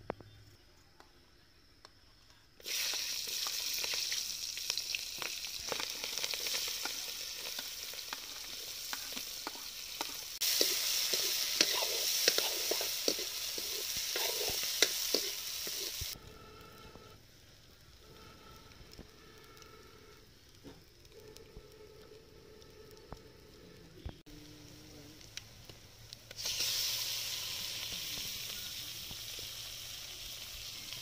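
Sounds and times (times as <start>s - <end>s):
vegetables sizzling in hot oil: 2.6s - 16.2s, 25.2s - 31.0s
metal spoon stirring in wok: 5.7s - 16.2s.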